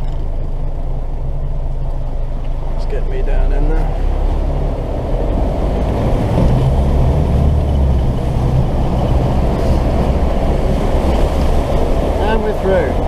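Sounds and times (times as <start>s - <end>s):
diesel engine running: 0.0s - 13.0s
water rushing and splashing: 2.9s - 13.0s.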